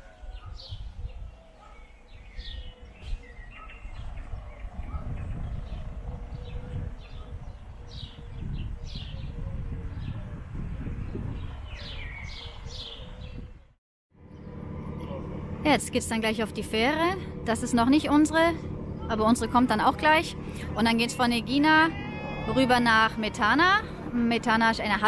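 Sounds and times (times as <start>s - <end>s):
small birds chirping: 0.0s - 10.3s, 11.1s - 13.7s
low irregular rumble: 14.2s - 25.0s.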